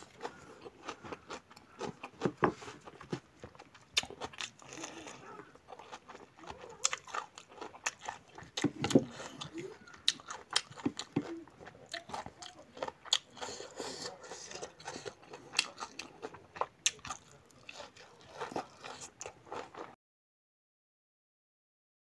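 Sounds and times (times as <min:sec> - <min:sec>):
person chewing and biting food: 0:00.0 - 0:20.0.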